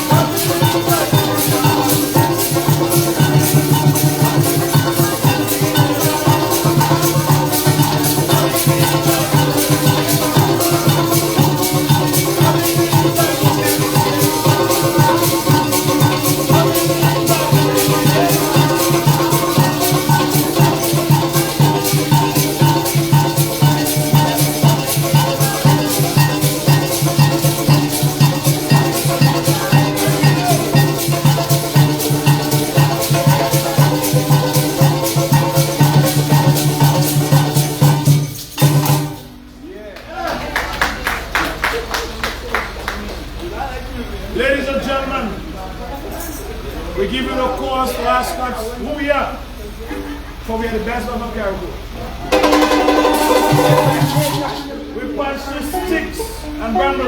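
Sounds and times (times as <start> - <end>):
live band music: 0.0 - 39.7, 52.3 - 55.0
maracas shaker rhythm: 0.0 - 44.8, 51.7 - 57.0.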